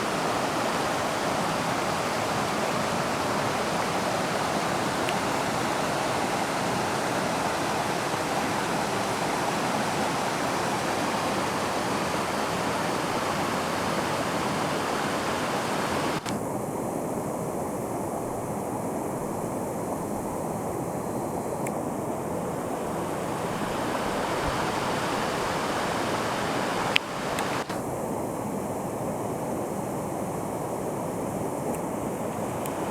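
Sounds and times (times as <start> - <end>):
river water rushing: 0.0 - 16.4, 17.0 - 32.9
sharp click: 16.2 - 16.4, 26.9 - 27.8.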